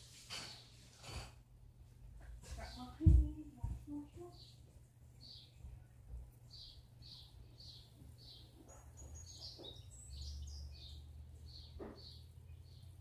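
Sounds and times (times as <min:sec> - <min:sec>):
bird chirping: 0:04.3 - 0:13.0.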